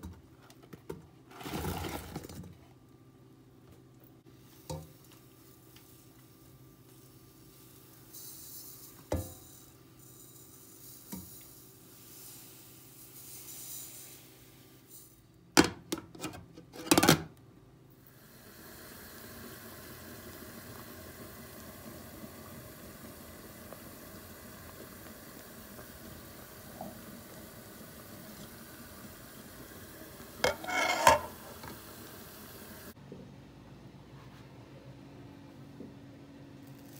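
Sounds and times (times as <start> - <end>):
dishes clattering: 30.4 - 31.7
dishes clinking: 30.4 - 31.7.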